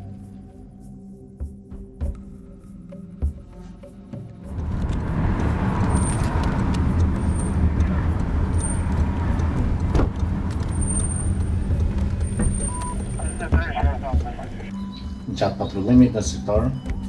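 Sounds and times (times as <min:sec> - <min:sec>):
car engine and road rumble: 0:01.4 - 0:17.0
faint high chirps: 0:14.7 - 0:15.8.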